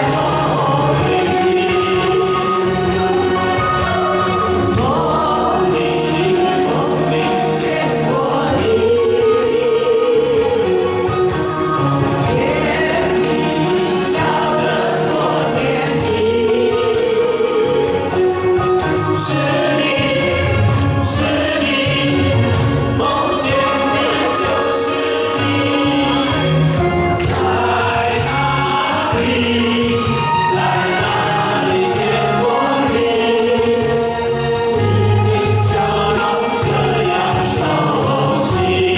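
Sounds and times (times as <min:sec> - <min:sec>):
group singing pop song in unison: 0:00.0 - 0:38.9
recorded backing track: 0:00.0 - 0:38.9.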